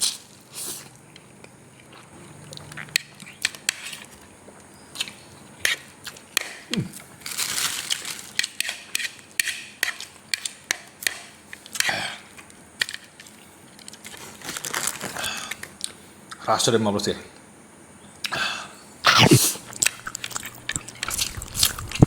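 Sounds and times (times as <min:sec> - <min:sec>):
person chewing noodles: 0:00.0 - 0:07.1, 0:19.1 - 0:22.0
slurping noodles: 0:19.1 - 0:22.0.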